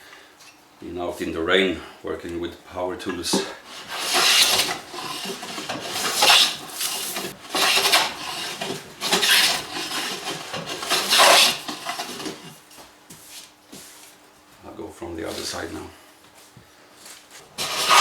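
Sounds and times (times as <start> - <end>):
hand plane scraping wood: 3.3 - 12.6, 17.5 - 18.0.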